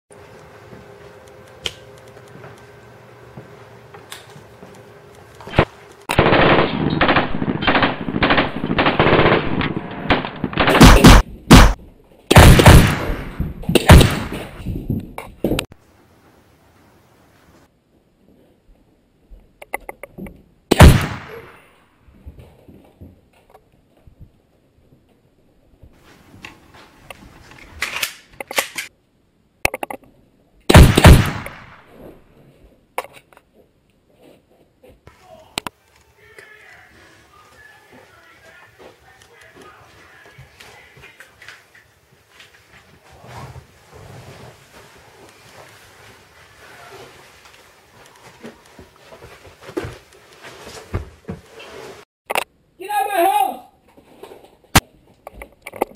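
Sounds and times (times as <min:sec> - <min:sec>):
gunshots: 0:05.5 - 0:14.6, 0:20.7 - 0:21.6, 0:30.7 - 0:32.0
rapid automatic gunfire: 0:06.1 - 0:13.2
scuffling: 0:36.0 - 0:52.0.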